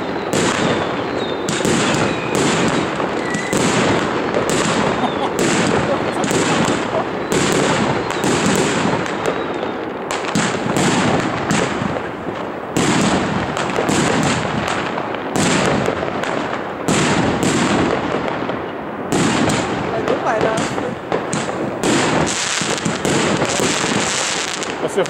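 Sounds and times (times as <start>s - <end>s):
fireworks crackle: 0.0s - 25.0s
fireworks shots and bursts: 0.0s - 25.0s.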